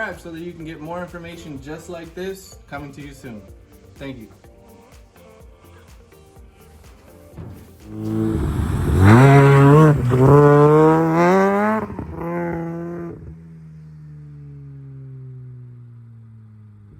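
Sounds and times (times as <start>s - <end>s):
car engine revving: 7.8s - 16.9s.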